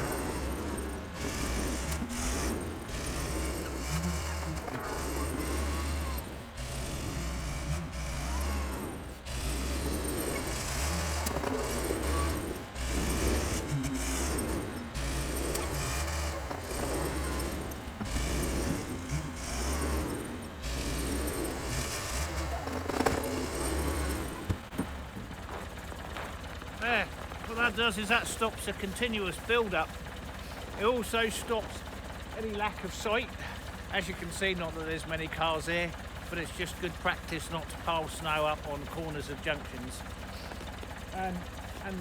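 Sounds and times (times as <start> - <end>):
mechanical noise: 0.0 - 25.7
tractor engine droning: 0.0 - 42.0.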